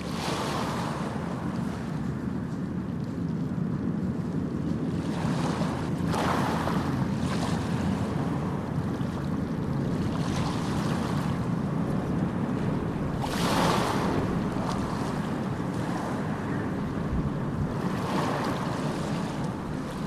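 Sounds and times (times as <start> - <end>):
small waves washing onto sand: 0.0 - 3.3, 4.7 - 20.0.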